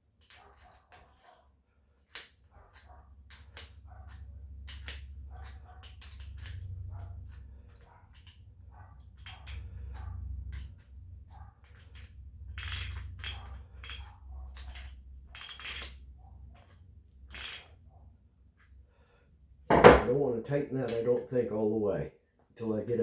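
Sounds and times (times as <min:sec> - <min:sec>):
metal tools clinking: 0:09.0 - 0:17.8.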